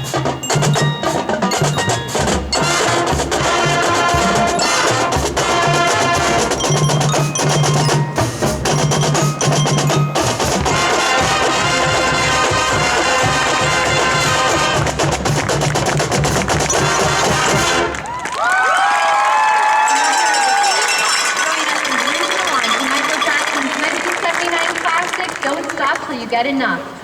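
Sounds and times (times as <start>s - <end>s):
wood block: 0.0s - 11.3s, 14.8s - 17.7s, 20.0s - 23.8s
bells and glockenspiel: 0.0s - 13.1s, 15.8s - 17.9s, 19.8s - 23.9s
brass chords: 0.0s - 18.0s
drums: 0.0s - 18.6s.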